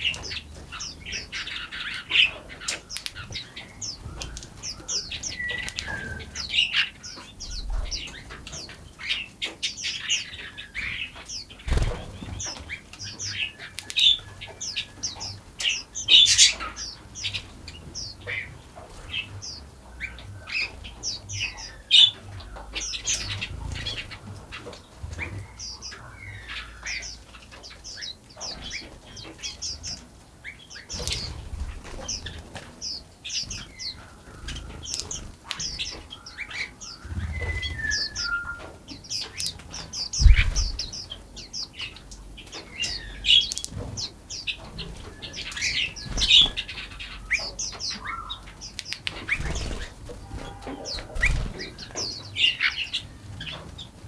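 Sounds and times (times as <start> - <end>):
small birds chirping: 0.0 - 54.0
whistled bird note: 37.2 - 38.7.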